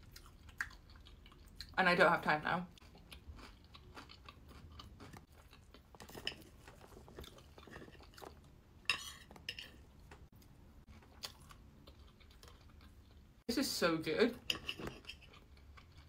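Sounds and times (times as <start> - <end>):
chewing toast: 0.0 - 1.8, 2.8 - 13.3, 14.5 - 16.0
cutlery scraping on ceramic plate: 8.9 - 9.8, 14.4 - 15.3.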